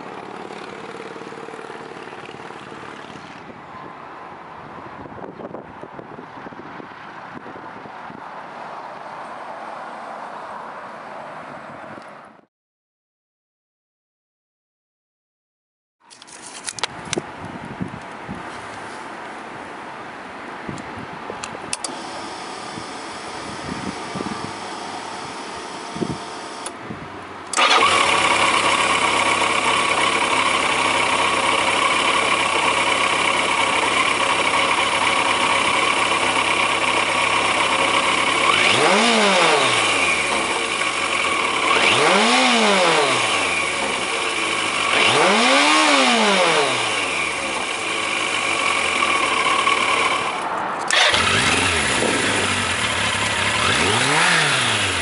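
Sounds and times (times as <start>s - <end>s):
motorcycle engine starting and idling: 0.0s - 3.6s, 21.7s - 26.8s, 27.4s - 55.0s
engine throttle blips: 27.5s - 55.0s.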